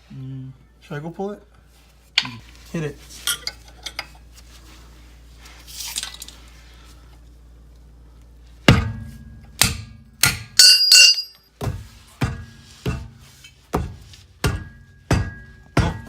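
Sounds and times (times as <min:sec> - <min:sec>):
hammer striking metal: 0:08.7 - 0:11.4, 0:13.8 - 0:16.0.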